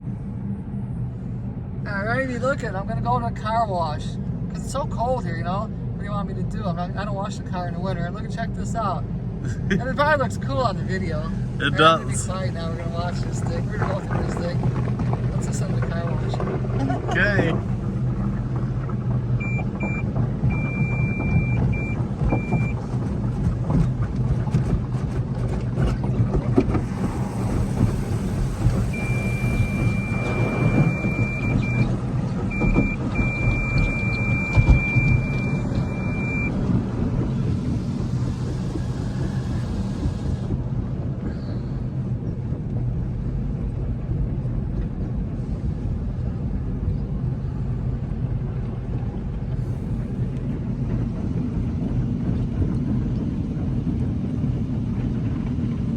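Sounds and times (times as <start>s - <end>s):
machinery and engine hum: 0.0s - 55.9s
high electronic beeping tone: 28.9s - 31.9s, 32.5s - 36.5s.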